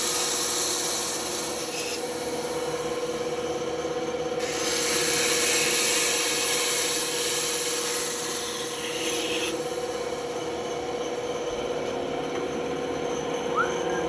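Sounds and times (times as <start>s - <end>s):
saw blade cutting wood: 0.0s - 2.3s, 4.4s - 9.6s
band saw humming: 13.1s - 14.0s.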